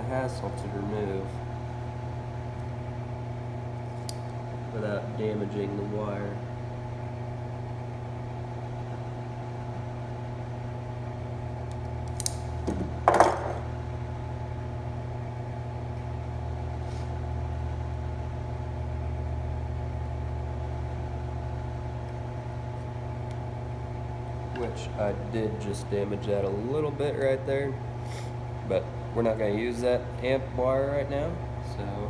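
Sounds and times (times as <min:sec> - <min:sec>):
steady machine hum: 0:00.0 - 0:32.0
nippers snipping tubing: 0:03.9 - 0:04.4, 0:11.7 - 0:12.5.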